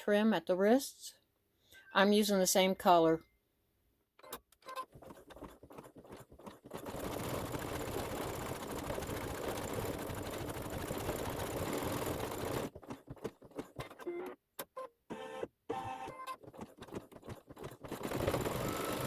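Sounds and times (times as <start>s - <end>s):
embroidery machine stitching: 4.7s - 14.3s, 15.7s - 19.0s.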